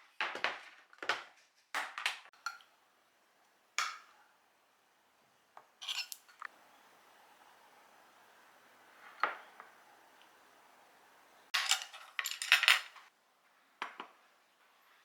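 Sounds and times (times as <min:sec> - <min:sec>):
dishes clinking and clattering: 0:11.6 - 0:13.1.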